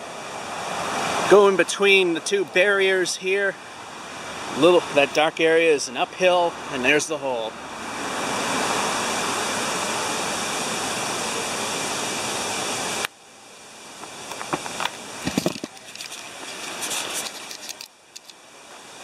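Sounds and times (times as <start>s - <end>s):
waterfall rushing: 0.0s - 13.1s.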